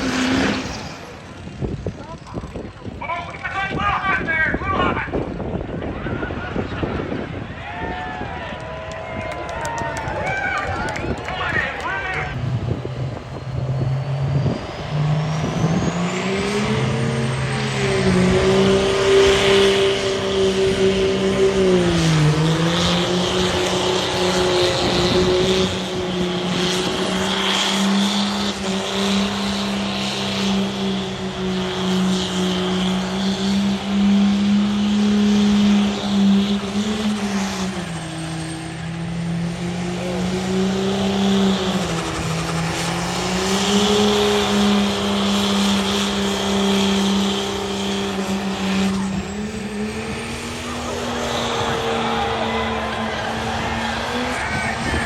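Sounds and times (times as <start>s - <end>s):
high turbo whine: 0.0s - 55.0s
truck engine at high revs: 0.0s - 55.0s.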